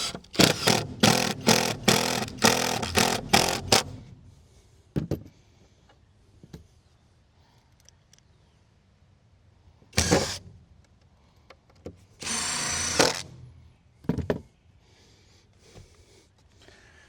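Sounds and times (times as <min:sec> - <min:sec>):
power drill driving screws into wood: 0:00.0 - 0:04.0, 0:10.0 - 0:10.5, 0:12.2 - 0:13.5.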